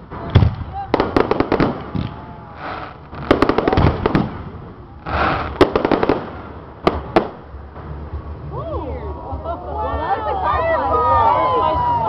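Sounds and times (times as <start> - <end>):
fireworks bursting with crackling pops: 0.0 - 8.4.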